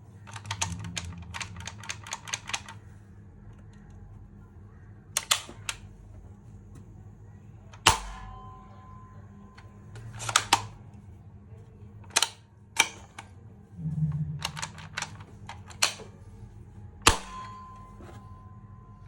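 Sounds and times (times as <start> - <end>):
toy blaster plastic clicks: 0.2 - 2.8, 5.2 - 5.8, 10.0 - 10.7, 12.0 - 13.2
sharp crack with ringing: 7.8 - 9.4, 17.0 - 18.2
brief low hum: 13.6 - 14.7.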